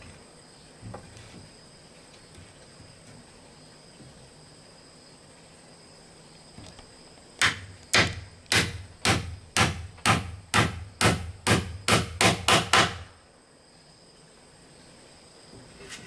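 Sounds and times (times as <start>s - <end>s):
hand tool striking wood: 7.4s - 13.1s.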